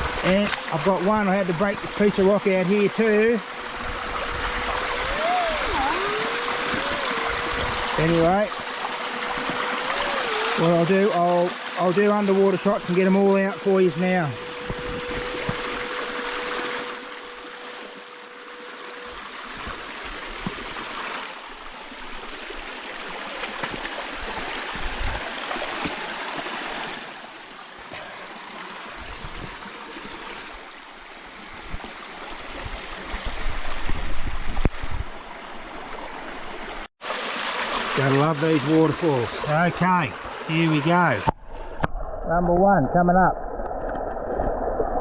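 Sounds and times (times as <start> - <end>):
water rushing over small waterfall: 0.0 - 31.0, 35.8 - 41.3
low thumps and buffeting: 14.4 - 16.4.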